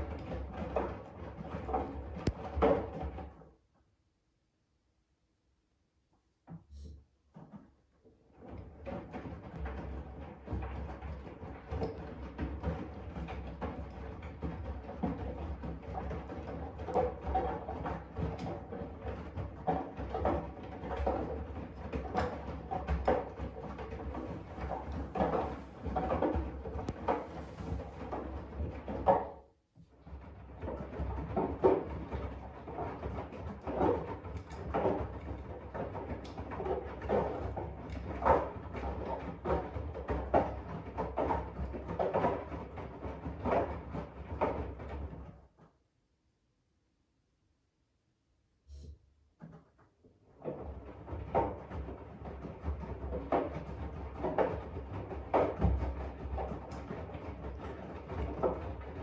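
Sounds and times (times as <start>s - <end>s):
laundry tumbling and sloshing: 24.0s - 29.2s.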